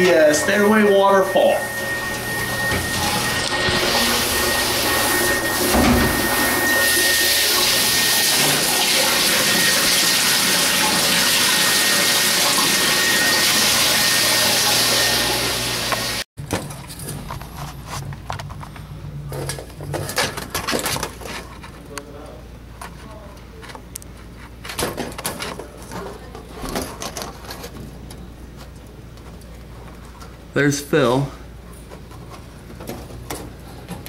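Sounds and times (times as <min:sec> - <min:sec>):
low hum: 0:00.0 - 0:07.4
water pouring down stairs: 0:03.8 - 0:16.2.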